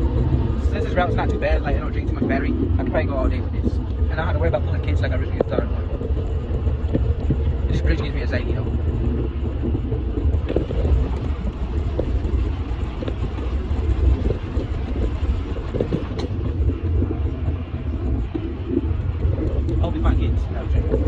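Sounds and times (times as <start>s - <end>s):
tyres rumbling on bridge: 0.0s - 21.0s.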